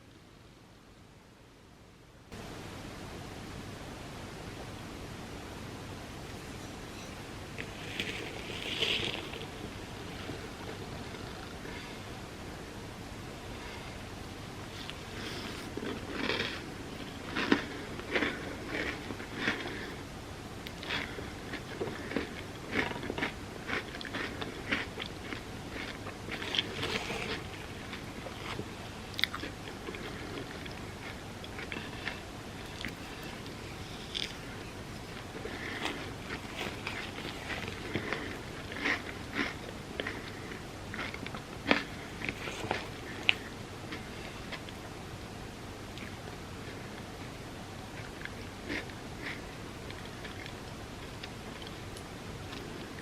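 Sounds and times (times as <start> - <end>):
person chewing crunchy food: 6.3 - 12.0, 14.7 - 20.0, 20.7 - 44.8, 48.0 - 51.8.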